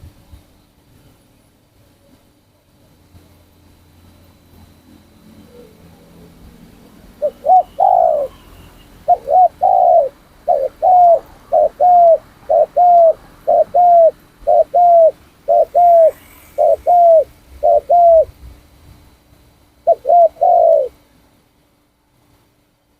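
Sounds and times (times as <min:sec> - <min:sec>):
dove cooing: 0:05.3 - 0:06.4, 0:07.1 - 0:18.4, 0:19.8 - 0:21.0.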